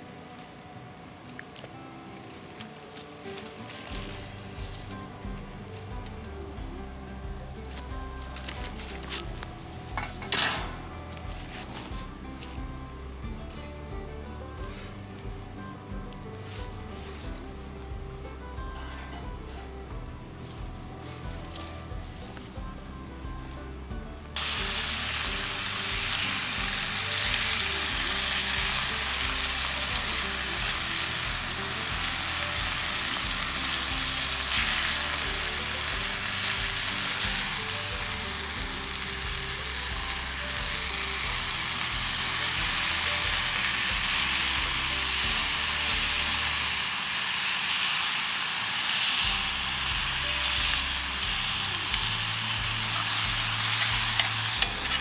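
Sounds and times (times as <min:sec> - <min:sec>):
food sizzling in a skillet: 0:02.6 - 0:12.6, 0:24.4 - 0:55.0.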